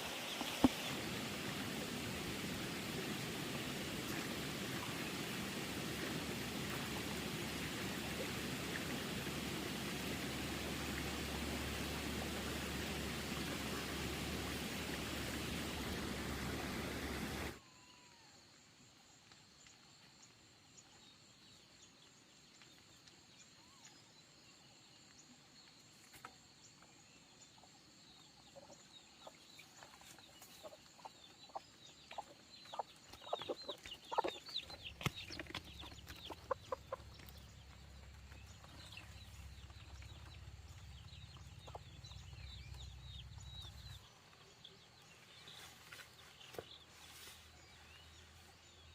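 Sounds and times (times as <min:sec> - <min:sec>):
chickens clucking and peeping: 0:00.2 - 0:17.6, 0:28.6 - 0:43.9.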